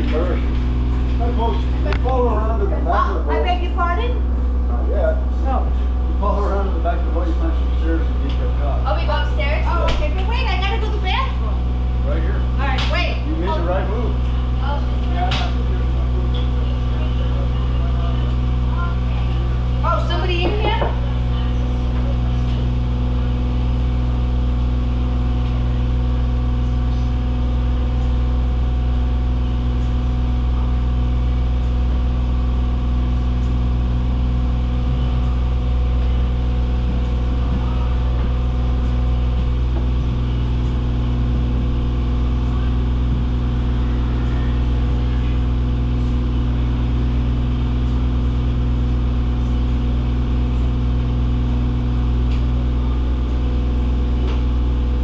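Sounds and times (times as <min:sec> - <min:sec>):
boat engine drone: 0:00.0 - 0:55.0.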